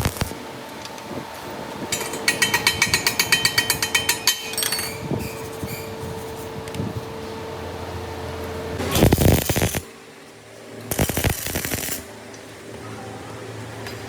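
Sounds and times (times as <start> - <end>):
machine hum: 0.0 - 13.9
fast metal-on-metal tapping: 1.9 - 5.0.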